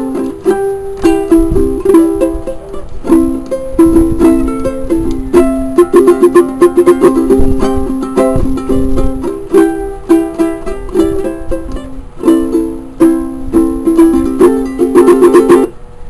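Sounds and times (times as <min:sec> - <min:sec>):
ukulele strumming chords: 0:00.0 - 0:15.8.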